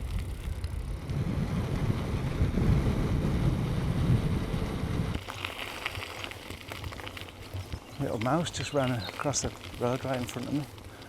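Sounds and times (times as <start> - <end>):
bicycle road noise: 0.0 - 11.0
wind rumble on microphone: 0.0 - 11.0.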